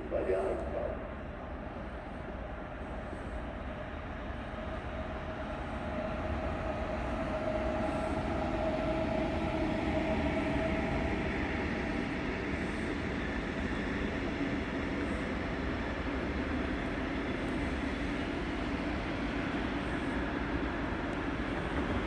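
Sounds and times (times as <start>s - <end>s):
train whine: 0.0s - 22.0s.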